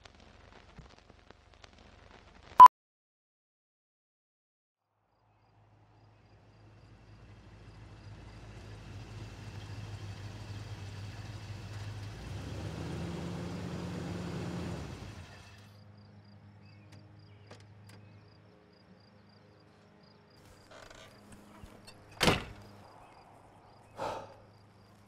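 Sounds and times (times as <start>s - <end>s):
car engine idling: 6.6s - 15.6s.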